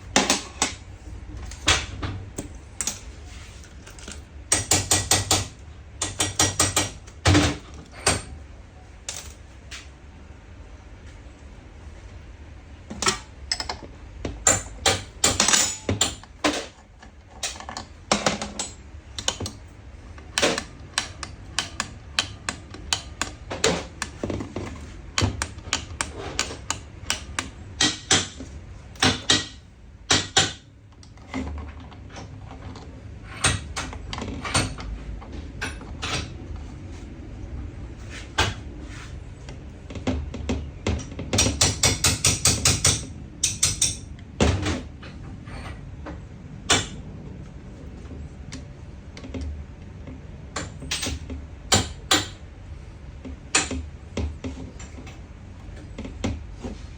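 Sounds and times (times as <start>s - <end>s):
clicks and knocks of hand tools: 3.9s - 8.3s, 12.9s - 19.6s, 20.2s - 28.4s, 40.0s - 44.1s.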